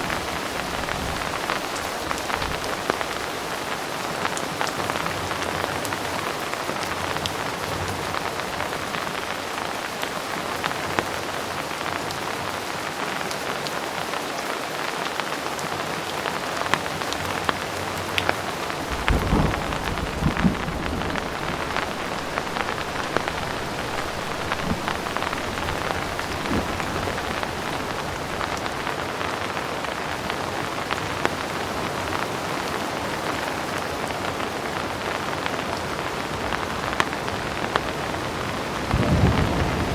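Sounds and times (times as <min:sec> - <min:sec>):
heavy rain: 0:00.0 - 0:39.9
thunder rumble: 0:18.7 - 0:29.1, 0:38.9 - 0:39.9.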